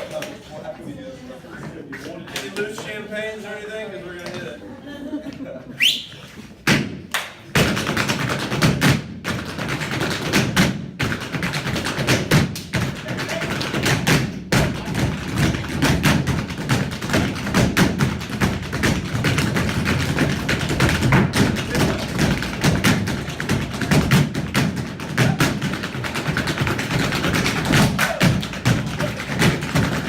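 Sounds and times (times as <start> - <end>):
tap dancing taps and stamps: 6.7 - 30.0.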